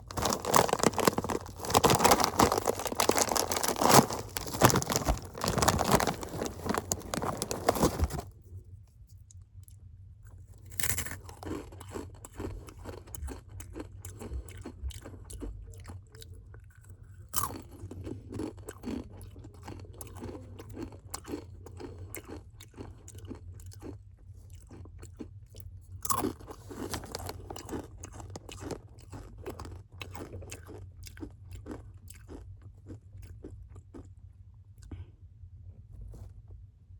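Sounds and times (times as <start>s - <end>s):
person crunching chips: 0.0s - 8.3s, 10.7s - 13.9s, 17.4s - 19.0s, 26.1s - 32.4s.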